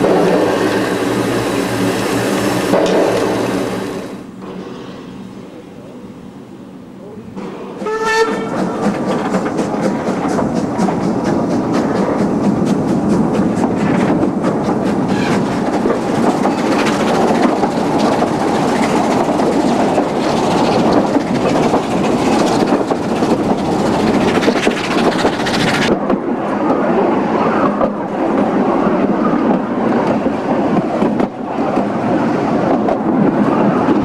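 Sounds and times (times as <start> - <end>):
train wheels rumbling on rails: 0.0 - 34.0
wheels clicking over rail joints: 7.4 - 26.2.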